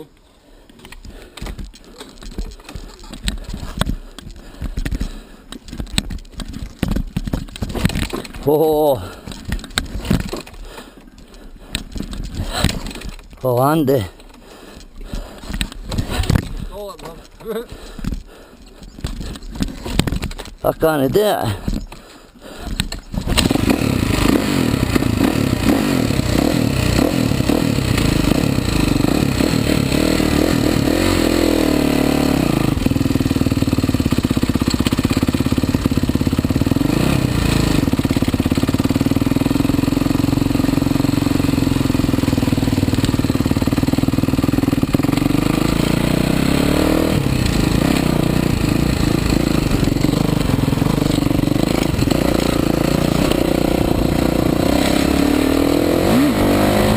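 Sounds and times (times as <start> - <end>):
motocross bike engine revving: 23.2 - 56.9.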